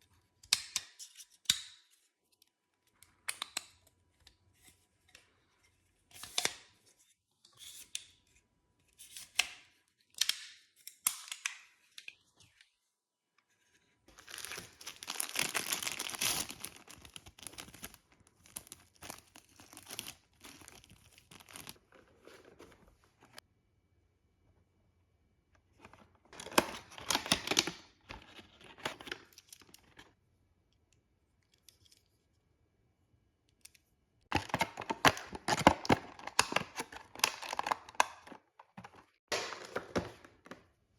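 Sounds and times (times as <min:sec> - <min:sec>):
packaging tearing and crinkling: 0:14.1 - 0:21.8, 0:34.3 - 0:39.9.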